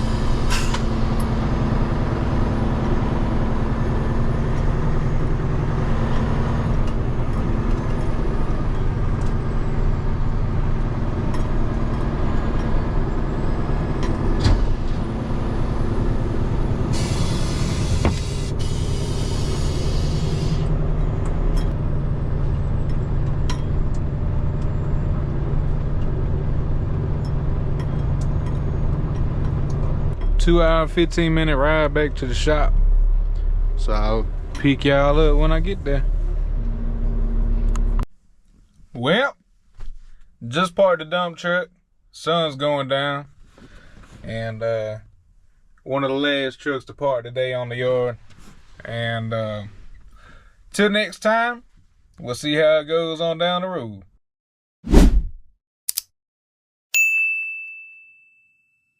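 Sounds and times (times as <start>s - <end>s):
truck diesel engine running: 0.0s - 38.0s
air hissing: 16.9s - 20.7s.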